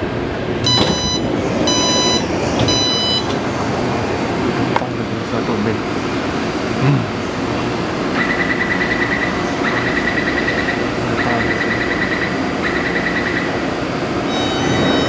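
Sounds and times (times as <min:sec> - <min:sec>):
train running noise: 0:00.0 - 0:15.0
rapid electronic beeping: 0:14.3 - 0:15.0.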